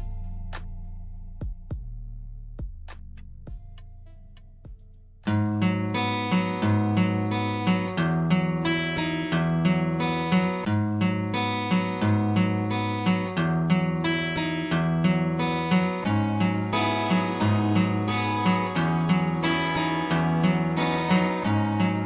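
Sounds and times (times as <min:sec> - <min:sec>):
strummed acoustic guitar: 0:05.3 - 0:22.0.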